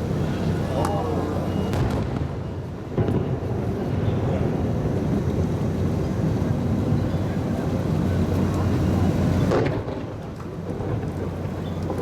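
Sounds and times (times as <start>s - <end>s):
fireworks booming: 1.6s - 5.6s, 9.3s - 12.0s
sharp firework bang: 1.7s - 2.4s, 9.5s - 10.1s.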